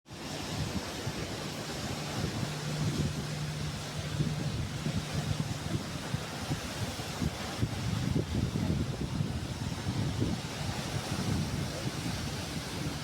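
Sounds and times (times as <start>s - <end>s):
sea waves washing on shore: 0.1s - 13.0s
wind buffeting microphone: 0.1s - 13.0s
low steady hum: 0.2s - 13.0s.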